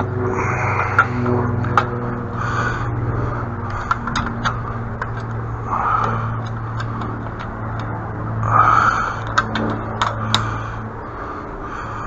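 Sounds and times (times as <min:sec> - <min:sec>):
low engine-like hum: 0:00.0 - 0:12.0
sharp clicks: 0:09.2 - 0:10.6.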